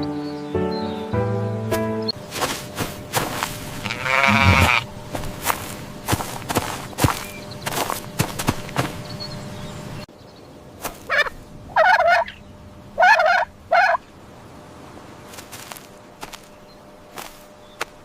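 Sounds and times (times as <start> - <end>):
turkey gobbling: 11.1 - 12.4, 13.0 - 14.1.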